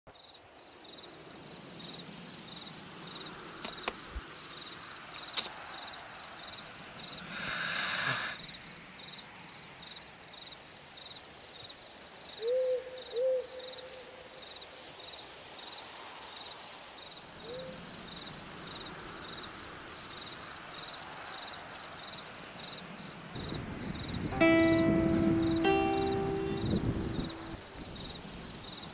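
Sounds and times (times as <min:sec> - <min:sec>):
cricket chirping: 0:00.1 - 0:17.2, 0:18.1 - 0:28.9
owl hoots: 0:12.4 - 0:14.0.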